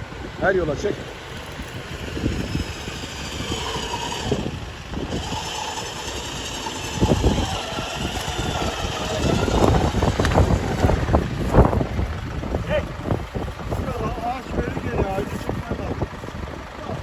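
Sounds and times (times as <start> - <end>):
vehicle engine rumbling: 0.0 - 17.0
heavy thumps: 8.2 - 12.2.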